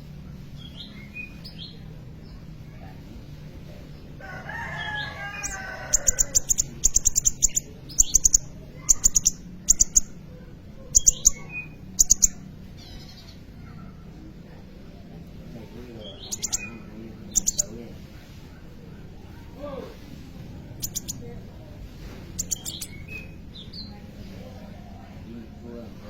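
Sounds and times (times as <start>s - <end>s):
high sharp bird chirps: 5.2s - 10.2s, 10.9s - 13.4s, 16.0s - 17.8s, 20.7s - 21.3s, 22.3s - 23.9s.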